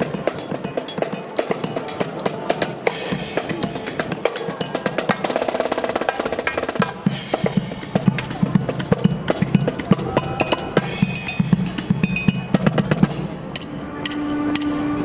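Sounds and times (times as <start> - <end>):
snare drum rolls: 0.0 - 14.8
held instrument tones: 9.4 - 15.0.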